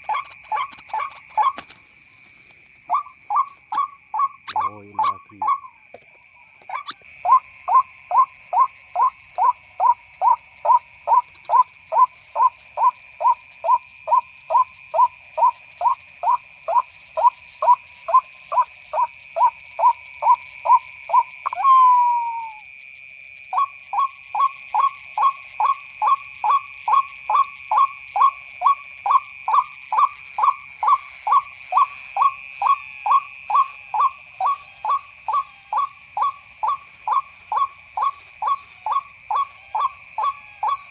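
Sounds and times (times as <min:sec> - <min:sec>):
waterhen calls from speaker: 0:02.9 - 0:05.7.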